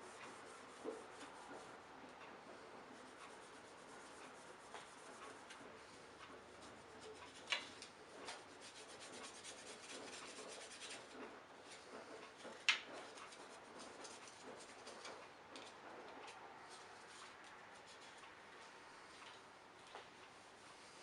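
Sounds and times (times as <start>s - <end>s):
rubbing on vacuum cleaner body: 8.2s - 12.2s.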